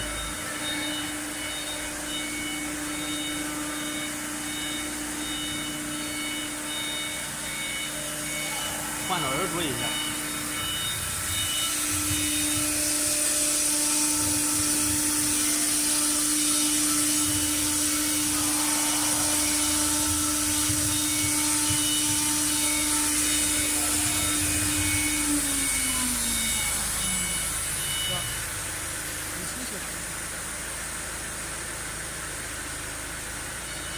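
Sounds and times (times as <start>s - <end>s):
high hiss: 0.0s - 33.9s
router spindle whine: 0.0s - 33.9s
low knocks from cutting: 10.0s - 25.8s.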